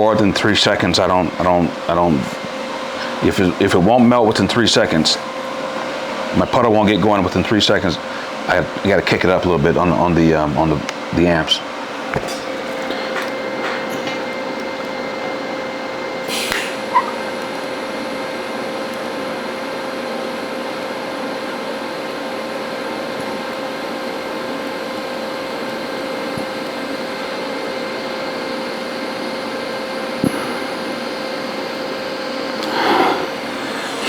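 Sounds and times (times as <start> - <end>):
faint hum: 0.0 - 19.8, 28.0 - 34.0
welding arc hissing: 16.2 - 17.6.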